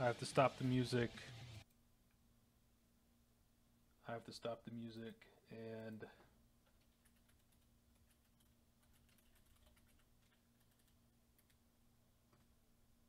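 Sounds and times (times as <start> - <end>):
computer keyboard clicks: 6.8 - 11.6.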